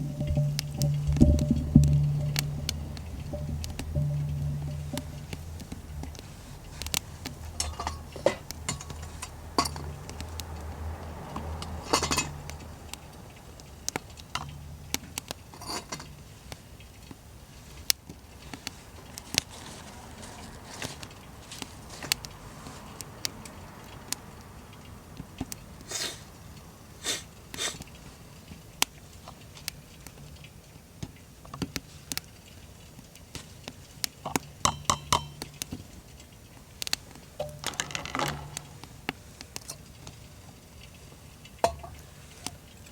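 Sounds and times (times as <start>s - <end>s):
metal cookware clinking: 0.0s - 13.2s, 14.0s - 16.4s, 34.2s - 36.0s, 37.3s - 39.0s, 41.6s - 42.2s
low background hum: 0.0s - 17.8s.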